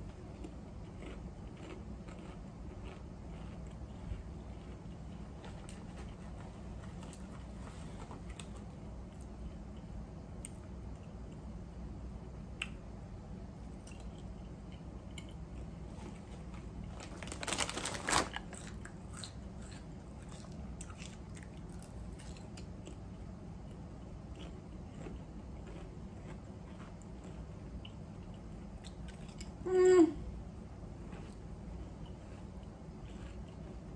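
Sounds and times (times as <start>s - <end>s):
chewing and crunching chips: 0.0s - 11.4s, 13.7s - 29.6s, 31.0s - 33.9s.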